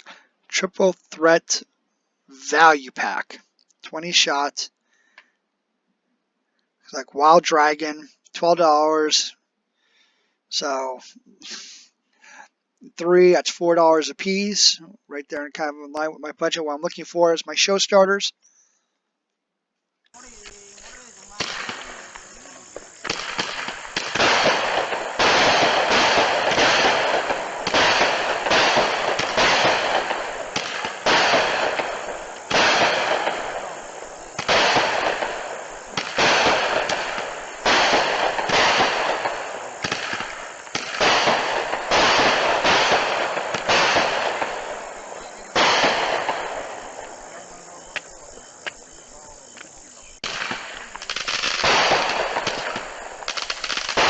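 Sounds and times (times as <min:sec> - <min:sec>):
firework cake bangs: 0:20.2 - 0:49.6, 0:50.2 - 0:54.0.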